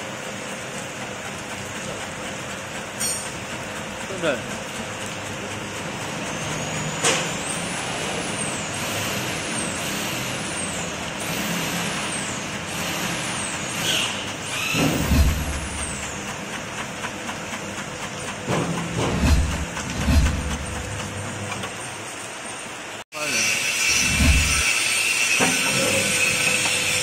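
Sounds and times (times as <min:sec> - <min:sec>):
slicing machine humming: 0:00.0 - 0:27.0
low rumbling and knocking: 0:14.7 - 0:17.2, 0:18.3 - 0:21.7, 0:24.0 - 0:24.6.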